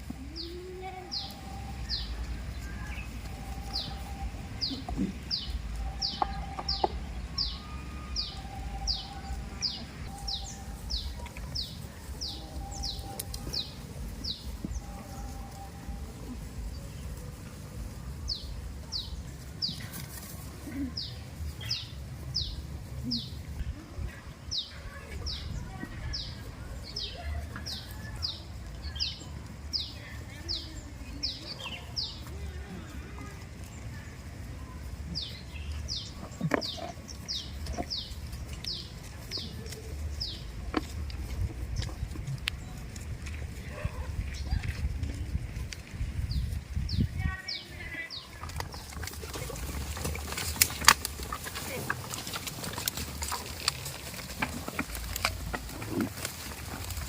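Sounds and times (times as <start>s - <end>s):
bird chirping: 0.1s - 20.0s.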